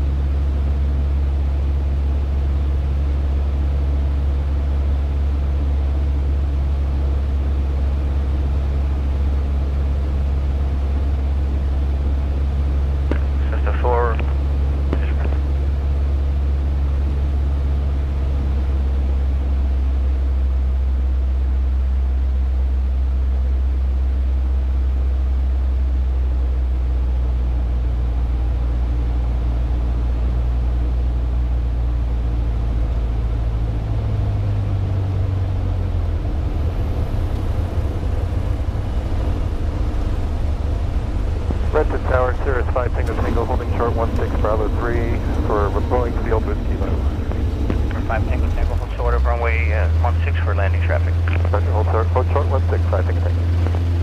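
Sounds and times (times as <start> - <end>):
airplane engine and propeller droning: 0.0 - 54.0.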